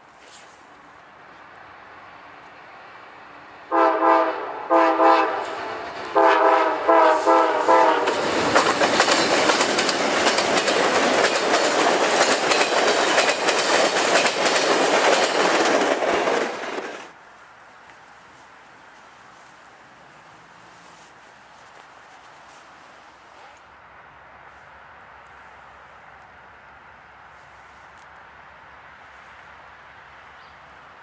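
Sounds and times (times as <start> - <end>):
locomotive horn blasts: 3.7 - 8.2
wheels clattering over rail joints: 8.0 - 17.2.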